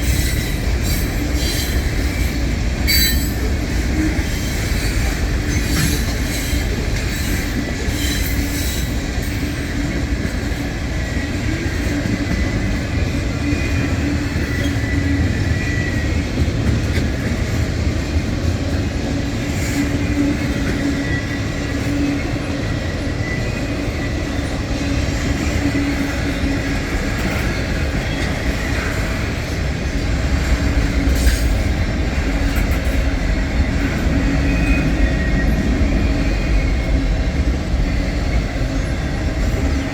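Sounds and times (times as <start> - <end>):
train wheels rumbling on rail: 0.0 - 39.9
high wheel squeal: 2.9 - 3.5.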